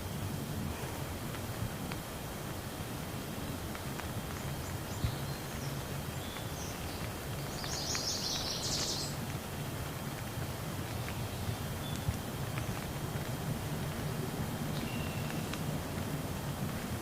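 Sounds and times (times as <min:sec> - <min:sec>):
steady rain: 0:00.0 - 0:17.0
bird chirping: 0:04.4 - 0:09.2, 0:14.7 - 0:15.6.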